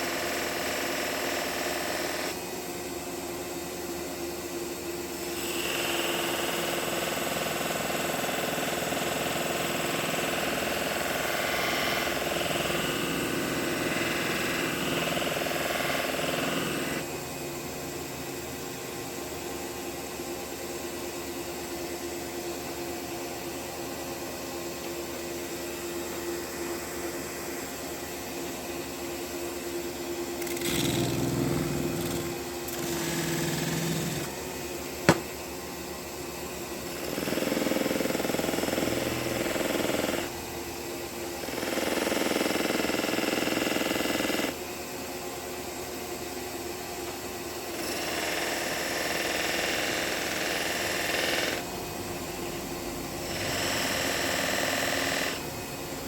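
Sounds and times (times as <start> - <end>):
sharpening machine motor hum: 0.0 - 2.4, 5.0 - 17.3, 35.0 - 35.4.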